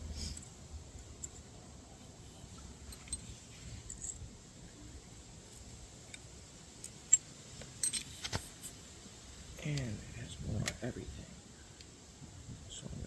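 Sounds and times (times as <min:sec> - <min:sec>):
small metal tools clinking: 0:02.5 - 0:04.3, 0:05.4 - 0:08.7.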